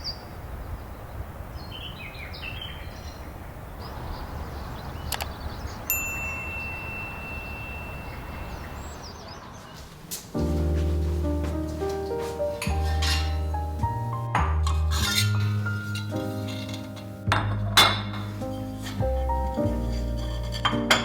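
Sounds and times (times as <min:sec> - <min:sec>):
bright chime ringing: 0:05.9 - 0:08.9
faint bird chirps: 0:06.6 - 0:09.8.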